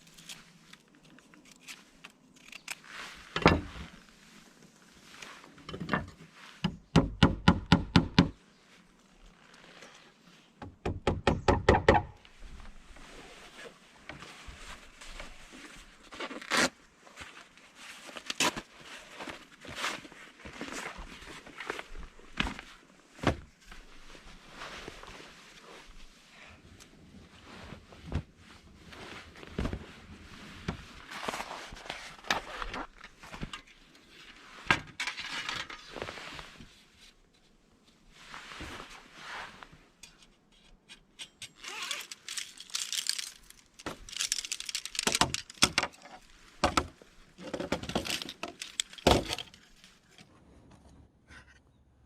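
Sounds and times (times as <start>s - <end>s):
zippers being pulled: 41.6s - 43.0s
gear rustling: 41.6s - 47.2s, 47.9s - 50.2s.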